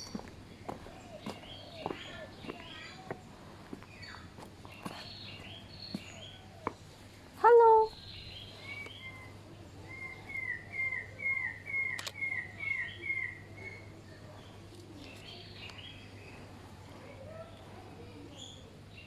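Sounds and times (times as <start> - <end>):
soft bird chirps: 0.0 - 7.1, 7.7 - 19.0
sharp click: 11.9 - 12.2.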